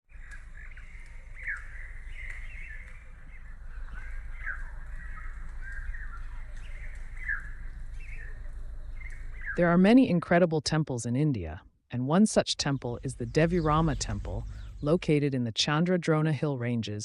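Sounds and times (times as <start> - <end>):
birds chirping and calling: 0.1 - 9.8, 12.7 - 15.1
low rumble: 12.6 - 15.3.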